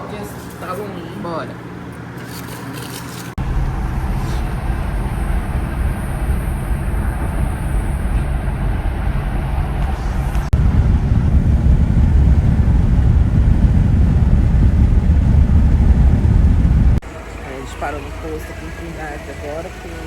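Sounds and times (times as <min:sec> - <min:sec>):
vehicle road and engine noise: 0:03.3 - 0:20.0.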